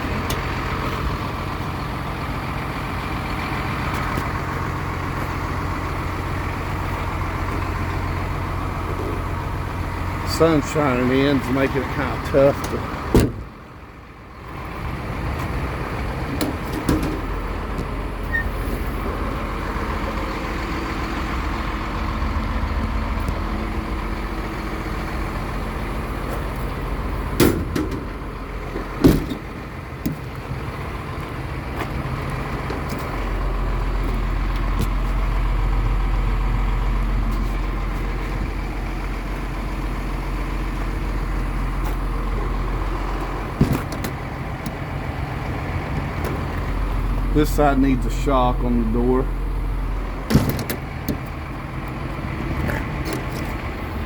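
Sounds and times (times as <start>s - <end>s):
truck diesel engine idling: 0.0s - 54.0s
sharp clunks: 13.1s - 13.5s, 43.6s - 44.2s, 50.3s - 51.2s.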